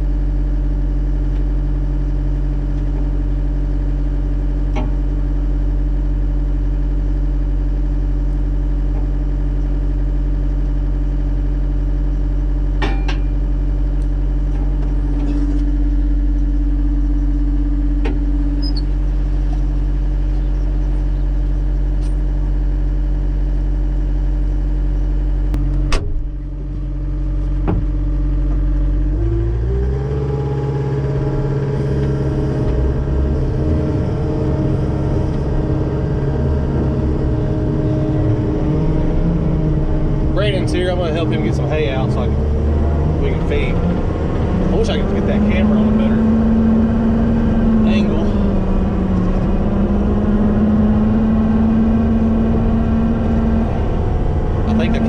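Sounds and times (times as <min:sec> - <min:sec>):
diesel engine idling: 0:00.0 - 0:55.0
sharp clunk: 0:12.8 - 0:13.4, 0:25.8 - 0:26.4.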